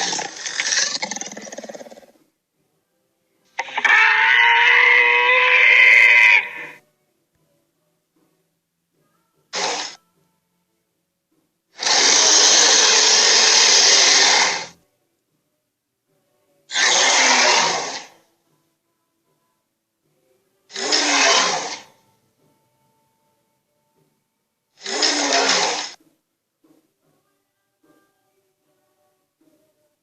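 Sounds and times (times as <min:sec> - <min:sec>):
dinosaur screech: 0:00.0 - 0:02.1, 0:03.6 - 0:06.8, 0:09.6 - 0:10.0, 0:11.8 - 0:14.8, 0:16.7 - 0:18.2, 0:20.7 - 0:22.0, 0:24.8 - 0:26.0.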